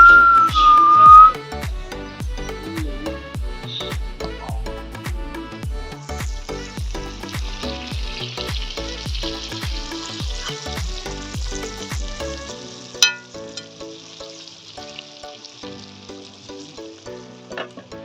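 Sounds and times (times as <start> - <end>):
background music with drum beat: 0.0 - 13.4
food sizzling: 0.0 - 18.0.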